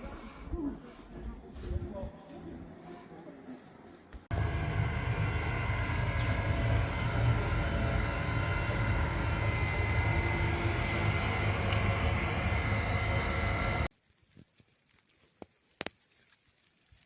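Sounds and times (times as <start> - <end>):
engine running with low rumble: 4.3 - 13.9.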